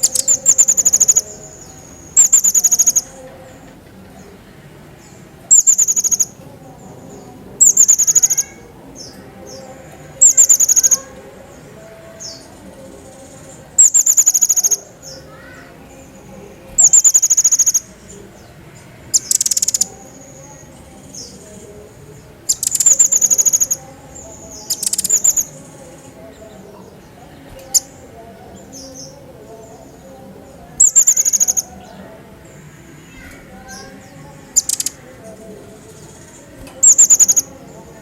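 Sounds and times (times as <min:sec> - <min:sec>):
songbird fast trilled bursts: 0:16.7 - 0:17.9.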